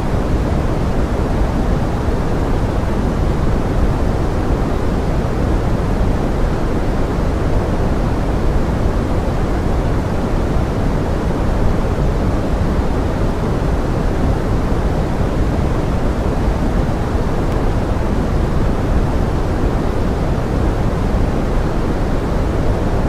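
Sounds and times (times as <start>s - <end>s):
pink noise: 0.0s - 23.0s.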